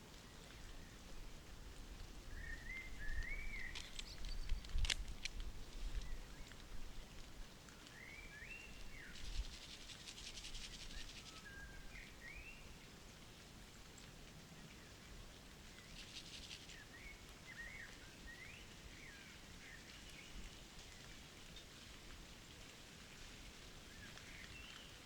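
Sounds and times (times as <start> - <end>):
sharp clicks: 3.6 - 6.1
bird rattling trill: 9.1 - 11.4.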